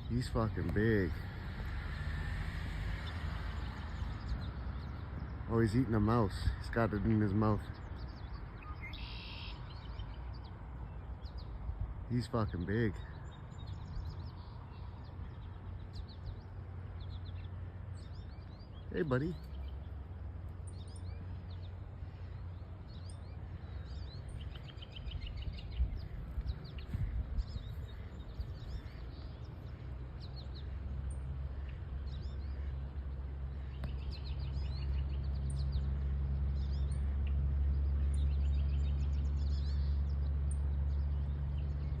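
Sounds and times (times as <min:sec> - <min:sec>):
small birds chirping and trilling: 0:00.0 - 0:42.0
steady low rumble: 0:00.0 - 0:42.0.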